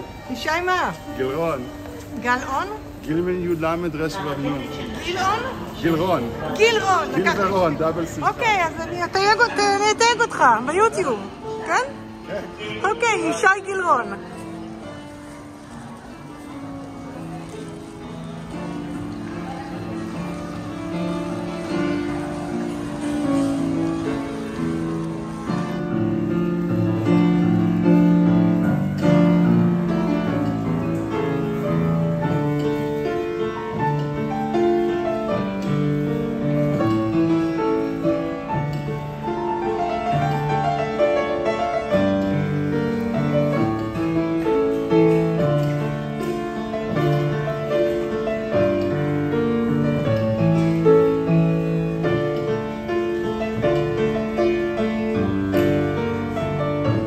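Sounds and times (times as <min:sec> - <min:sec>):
acoustic piano: 0:00.0 - 0:57.0.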